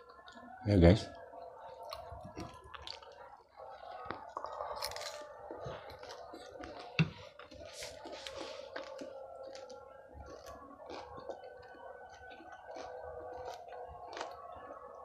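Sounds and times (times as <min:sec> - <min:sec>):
wet chewing sounds: 0:00.0 - 0:15.0.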